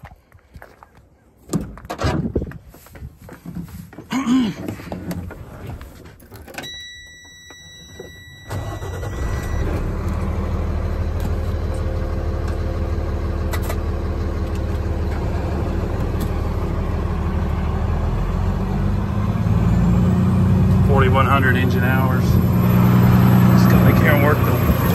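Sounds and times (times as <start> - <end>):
high beep: 6.6 - 9.8
diesel truck engine idling: 8.2 - 24.9.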